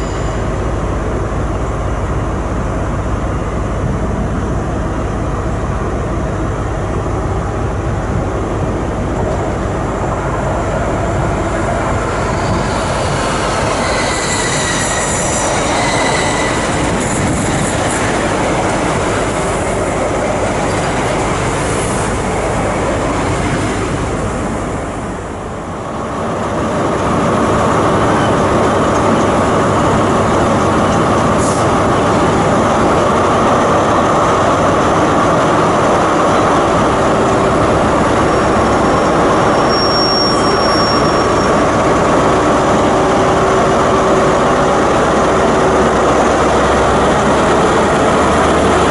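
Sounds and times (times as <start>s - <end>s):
high-pitched wheel squeals: 0.0s - 0.5s, 11.9s - 18.0s, 39.4s - 41.6s
train running on rails: 0.0s - 48.9s.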